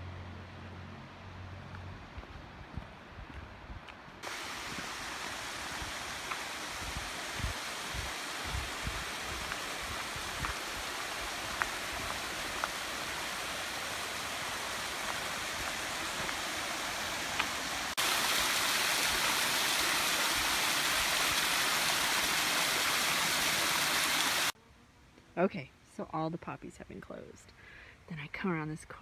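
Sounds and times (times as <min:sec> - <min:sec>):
creek water over small waterfalls: 0:04.2 - 0:24.6.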